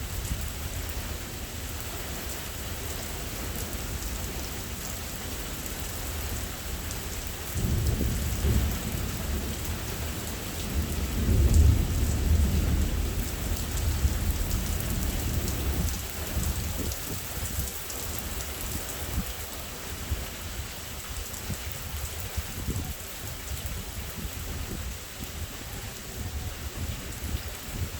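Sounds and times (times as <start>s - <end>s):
heavy rain: 0.0s - 27.9s
thunder rumbling: 7.5s - 17.6s.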